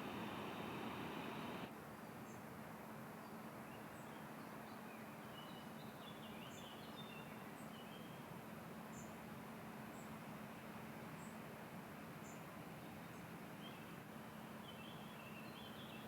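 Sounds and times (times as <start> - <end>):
faint low hum: 0.0 - 1.7
small birds chirping: 0.0 - 1.7.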